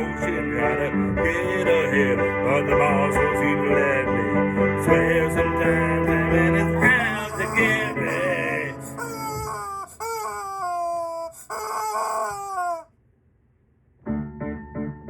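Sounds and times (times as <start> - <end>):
chicken squawks: 7.2 - 12.9.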